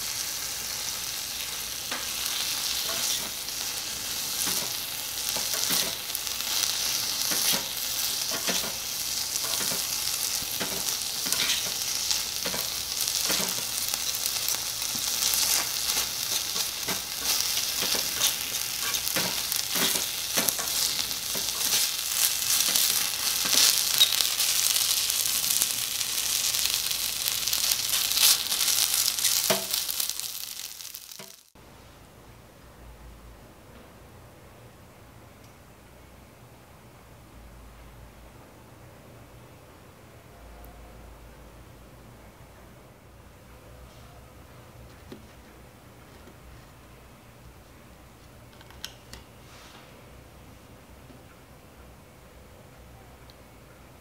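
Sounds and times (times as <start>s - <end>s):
stir-fry sizzling in a pan: 0.0s - 31.6s.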